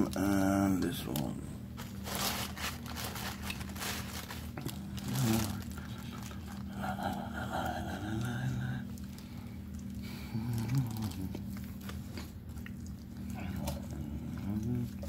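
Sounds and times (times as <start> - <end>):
low hum: 0.0 - 15.0
packaging scraping and rustling: 1.8 - 6.7
chewing sounds: 3.4 - 15.0.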